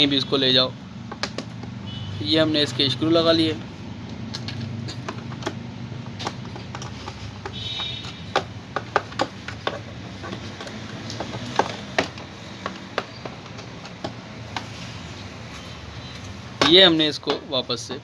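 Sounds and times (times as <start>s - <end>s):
speaker casing clicks and knocks: 1.0s - 1.8s, 4.0s - 14.7s, 16.5s - 17.5s.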